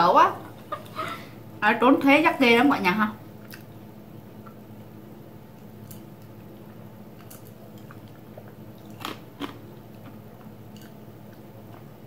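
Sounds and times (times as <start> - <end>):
steady low hum: 0.0 - 12.0
quiet chewing: 3.4 - 12.0
crunchy bites: 8.8 - 10.2.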